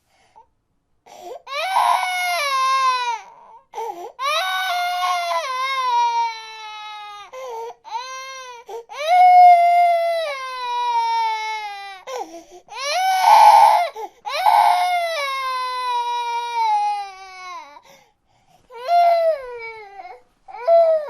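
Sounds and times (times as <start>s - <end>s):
infant gasping for breath: 1.1s - 1.5s, 3.7s - 4.2s, 7.3s - 7.8s, 12.1s - 12.7s, 14.0s - 14.3s, 17.8s - 18.7s
infant crying: 1.1s - 17.9s, 18.7s - 21.0s.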